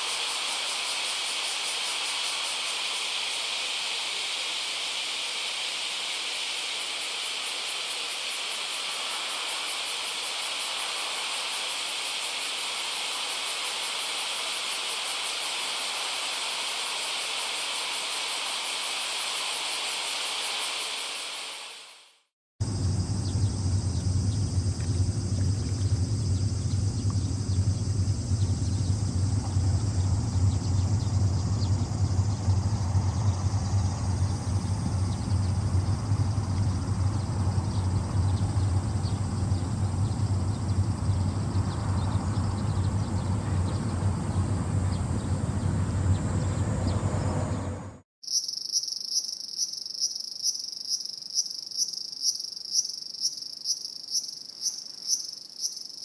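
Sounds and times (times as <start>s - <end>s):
crickets chirping: 0.0s - 22.0s, 22.6s - 56.0s
faint insect trill: 0.0s - 56.0s
low rumble: 22.6s - 48.0s.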